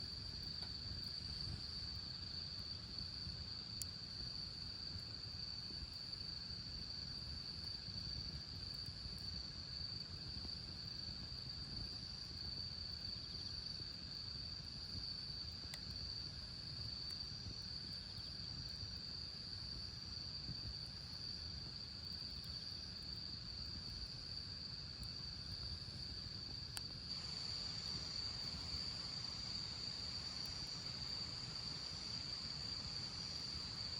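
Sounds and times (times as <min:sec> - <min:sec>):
insects trilling: 0:20.1 - 0:33.9
low outdoor rumble: 0:27.0 - 0:33.9
loud hiss: 0:27.1 - 0:33.9.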